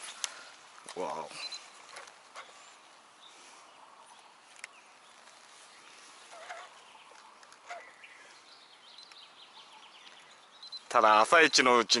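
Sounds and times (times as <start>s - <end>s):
wavering bird call: 6.1s - 8.4s.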